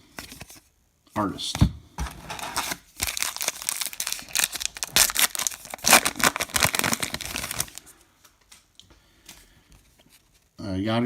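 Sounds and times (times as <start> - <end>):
plastic wrapper crinkling: 2.3 - 7.9.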